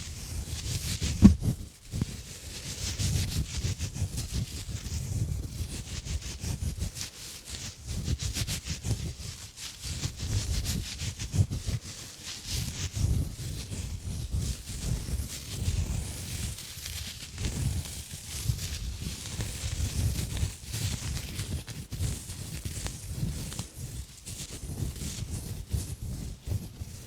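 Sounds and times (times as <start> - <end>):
exfoliation gloves scratching: 0.1 - 4.9, 14.7 - 23.7
low muffled bumps: 1.0 - 1.6.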